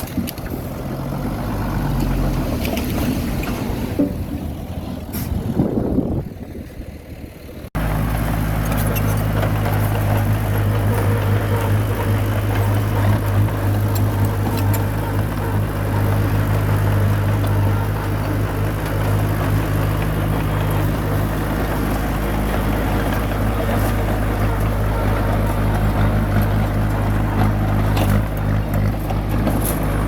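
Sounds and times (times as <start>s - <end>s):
bulldozer diesel engine running: 0.0s - 30.0s.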